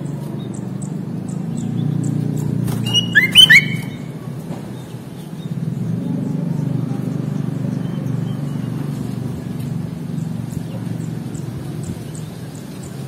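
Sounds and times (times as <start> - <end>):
faint high bird chirps: 2.8 - 4.1.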